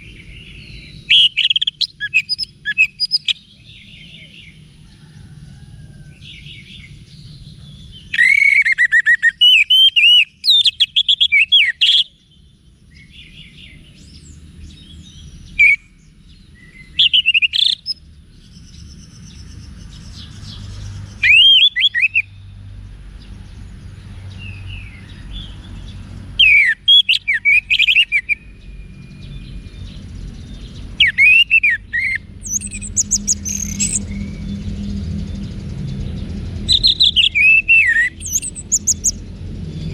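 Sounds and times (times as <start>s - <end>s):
thrush singing: 31.0s - 39.9s.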